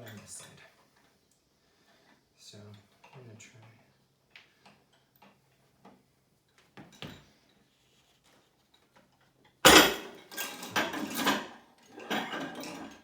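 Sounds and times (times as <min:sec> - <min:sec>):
weight plates clanking and thudding: 0:09.7 - 0:13.0.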